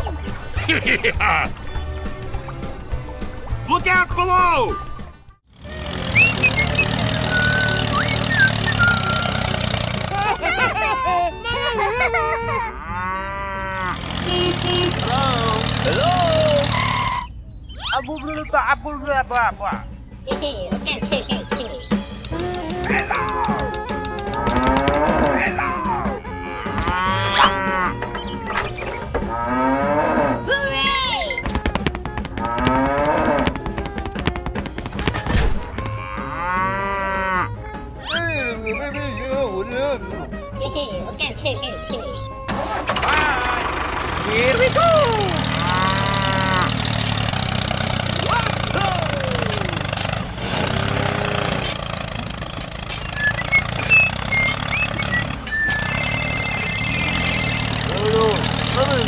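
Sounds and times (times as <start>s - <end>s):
small tractor engine idling: 5.5s - 10.2s, 42.5s - 59.0s
cattle mooing: 12.6s - 17.2s, 24.3s - 30.5s, 32.4s - 33.6s, 35.8s - 37.8s, 45.3s - 47.0s, 55.9s - 58.5s
music with clicking beat: 20.4s - 25.6s, 31.3s - 35.9s.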